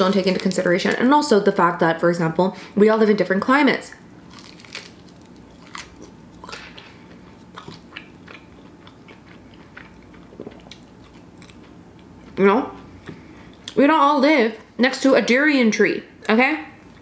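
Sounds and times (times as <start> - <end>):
small crunches: 4.3 - 12.1
person chewing food: 4.3 - 13.8.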